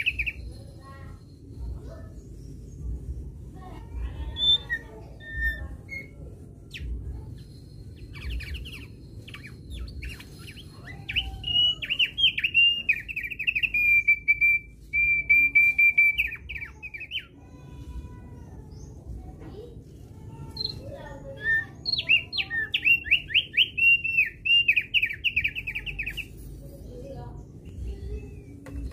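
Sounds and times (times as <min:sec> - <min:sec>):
low background rumble: 0:00.0 - 0:15.2
bird chirping and trilling: 0:00.0 - 0:28.9.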